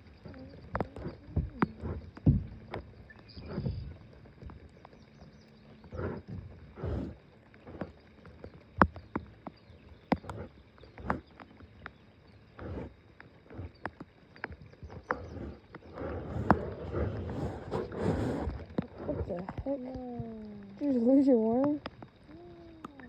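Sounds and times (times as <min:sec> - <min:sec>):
knocks and bumps on a boat: 0:00.0 - 0:11.5
water swishing against boat: 0:00.0 - 0:23.0.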